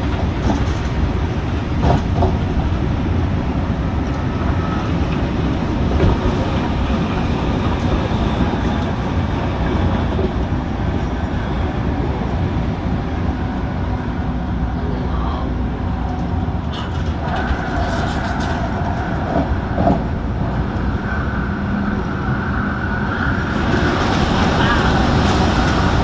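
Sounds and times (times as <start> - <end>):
electric train rumbling on track: 0.0 - 26.0
faint rail clicks: 15.9 - 21.3.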